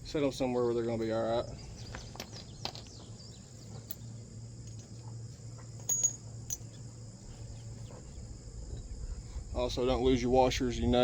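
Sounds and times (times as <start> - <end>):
crickets chirring: 0.0 - 11.0
light metallic clinks: 5.8 - 6.9.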